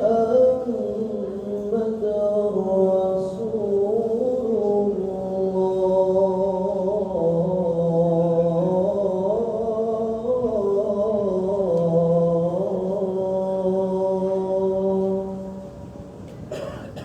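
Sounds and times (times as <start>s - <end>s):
man chanting call to prayer: 0.0s - 15.7s.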